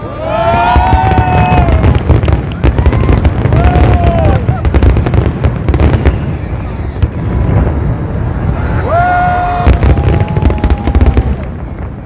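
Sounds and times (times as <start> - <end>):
fireworks booming: 0.0 - 12.0
fireworks crackling: 0.0 - 12.0
whistle-like tone: 6.0 - 7.1, 11.4 - 12.0.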